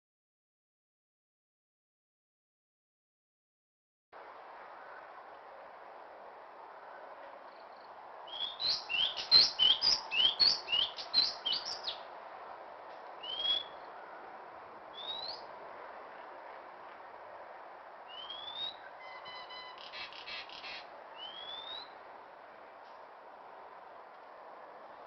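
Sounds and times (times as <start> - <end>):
bird whistling calls: 8.3 - 12.0, 13.2 - 13.8, 15.0 - 15.4, 18.1 - 22.0.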